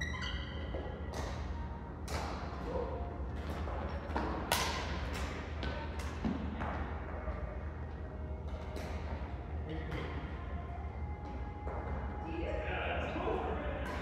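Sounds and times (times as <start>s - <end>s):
steady low hum: 0.0s - 14.0s
racket hitting shuttlecock: 4.1s - 6.4s.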